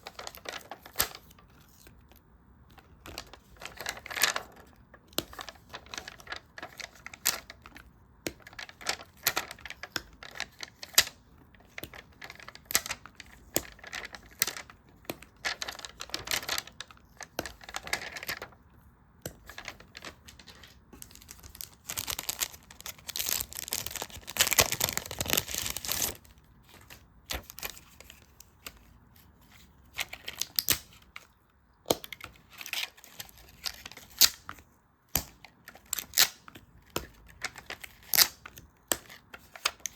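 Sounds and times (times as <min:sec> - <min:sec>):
dense paper rustling: 0:00.0 - 0:02.0, 0:02.9 - 0:07.7, 0:08.4 - 0:11.1, 0:11.7 - 0:18.6, 0:19.4 - 0:28.6
paper crinkling: 0:00.0 - 0:02.2, 0:02.8 - 0:18.7, 0:19.3 - 0:31.3.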